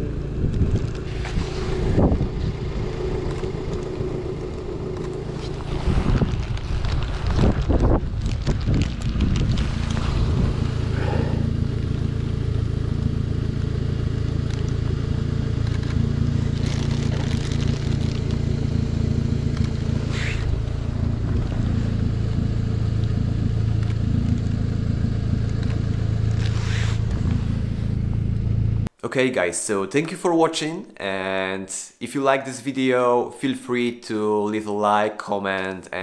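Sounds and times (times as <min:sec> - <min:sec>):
car engine humming: 0:00.0 - 0:28.9.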